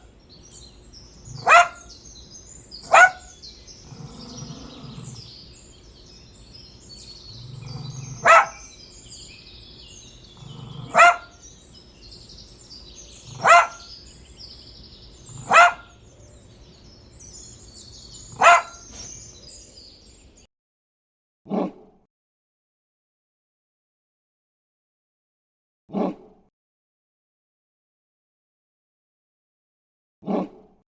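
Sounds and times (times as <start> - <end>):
dog barking: 0.0 - 14.4, 15.1 - 19.7.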